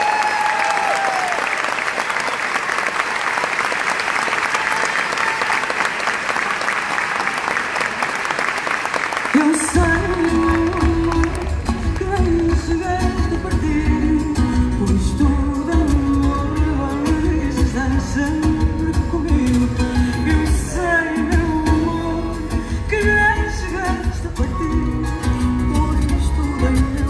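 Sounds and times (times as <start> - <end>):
woman singing: 9.3 - 27.0.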